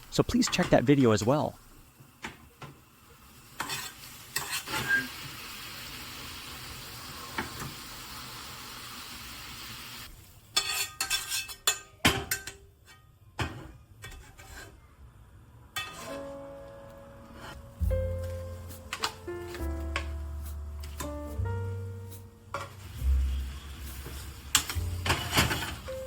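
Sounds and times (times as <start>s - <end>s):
food sizzling in a frying pan: 0.0s - 12.4s, 17.8s - 26.0s
utensils clinking against dishes: 10.6s - 14.6s, 24.0s - 26.0s
soft background music: 15.9s - 26.0s.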